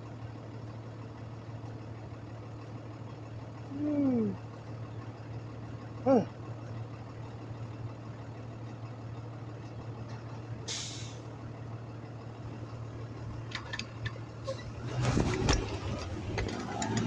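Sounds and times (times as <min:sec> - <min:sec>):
traffic engine hum: 0:00.0 - 0:17.0
short hiss: 0:10.7 - 0:11.2
clicks and clatter: 0:13.4 - 0:17.0.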